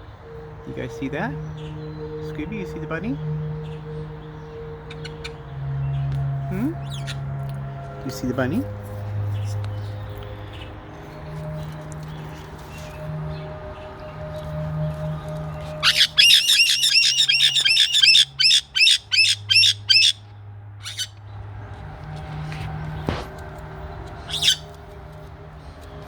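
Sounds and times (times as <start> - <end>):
parrots squawking: 4.9 - 5.4, 15.8 - 20.2, 20.8 - 21.1, 24.2 - 24.7.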